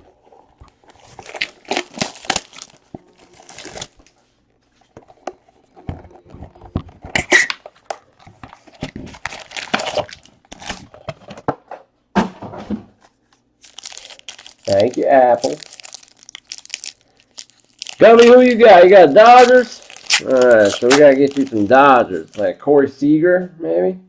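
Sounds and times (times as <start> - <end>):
plastic wrappers tearing and crinkling: 0.7 - 4.2, 8.5 - 11.0, 13.6 - 22.6
cards rustling: 13.6 - 22.6.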